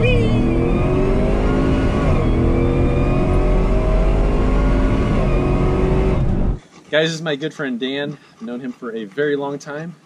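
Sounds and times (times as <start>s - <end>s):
car engine accelerating: 0.0s - 6.6s.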